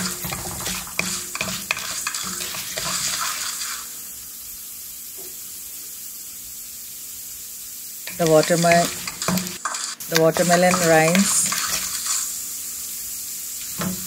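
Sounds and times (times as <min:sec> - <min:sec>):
wooden spoon scraping a pan: 0:00.0 - 0:03.8, 0:08.1 - 0:12.3
food sizzling in hot oil: 0:00.0 - 0:14.0.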